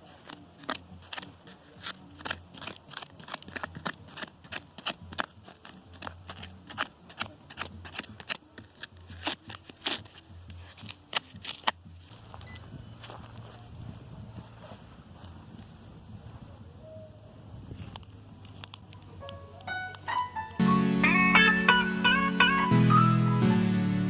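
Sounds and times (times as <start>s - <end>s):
small tool crunching in gravelly soil: 0.0s - 12.4s.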